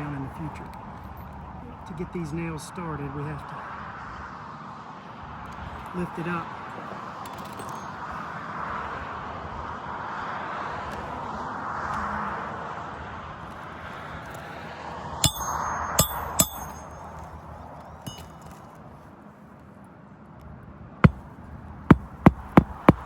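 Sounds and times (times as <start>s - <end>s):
hammer striking nail: 15.2s - 17.0s, 21.9s - 23.0s.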